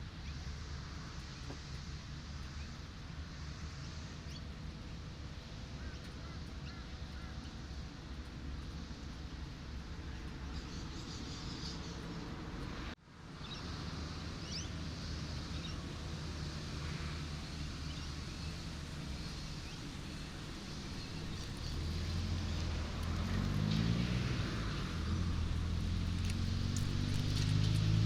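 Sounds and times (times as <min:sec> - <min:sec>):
road traffic engine hum: 0:00.0 - 0:28.0.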